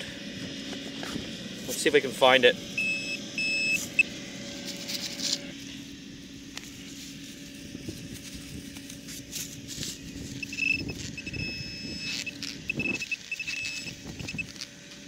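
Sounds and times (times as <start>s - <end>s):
low steady hum: 0.0s - 15.0s
metal detector high tone: 2.8s - 5.5s, 9.8s - 14.7s
hand tool digging in soil: 4.6s - 5.6s, 6.6s - 15.0s.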